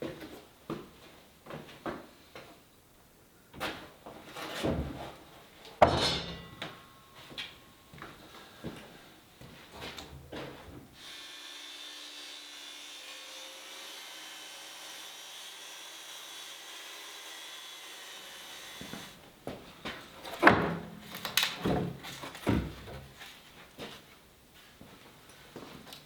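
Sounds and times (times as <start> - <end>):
wooden knocks and scraping: 4.3 - 5.2, 18.8 - 23.3.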